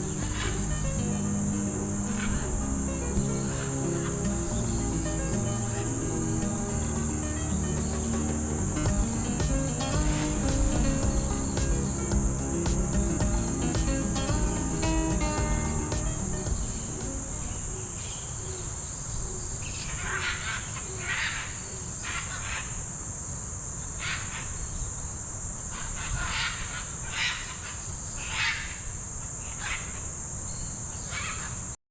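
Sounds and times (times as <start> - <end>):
insects droning: 0.0 - 31.8.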